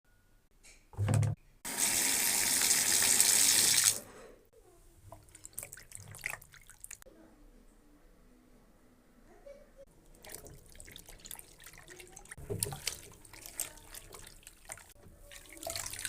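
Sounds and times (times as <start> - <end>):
tap water running into sink: 1.1 - 4.0, 10.1 - 16.0
water drips and splashes: 5.1 - 7.0, 10.0 - 16.0.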